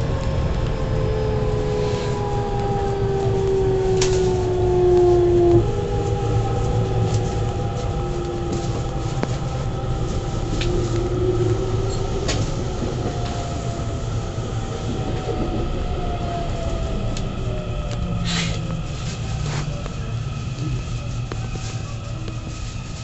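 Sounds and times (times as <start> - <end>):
rail joint clicks: 0.0 - 22.9
train wheels rumbling on rail: 0.0 - 23.0.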